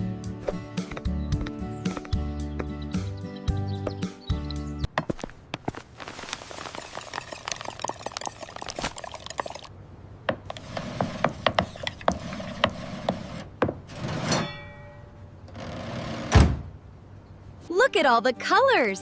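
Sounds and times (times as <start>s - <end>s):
ringing ding: 14.4s - 15.2s.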